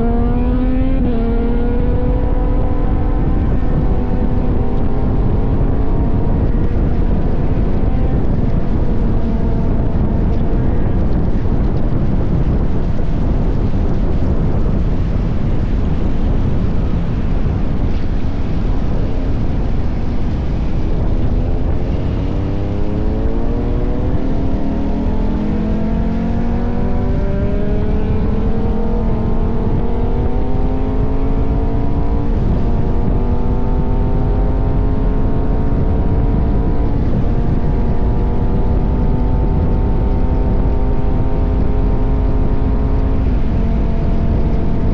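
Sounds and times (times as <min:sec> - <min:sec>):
motorcycle engine: 0:00.0 - 0:44.9
wind rumble on microphone: 0:00.0 - 0:44.9.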